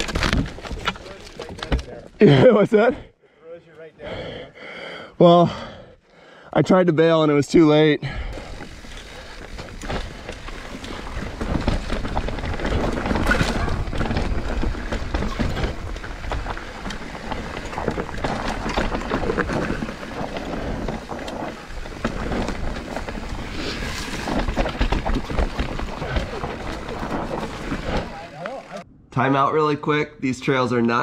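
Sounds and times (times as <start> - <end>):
bike rattling and clicking: 0.0 - 2.2, 8.3 - 28.8
tyres rolling over loose dirt: 0.0 - 2.5, 8.3 - 28.8.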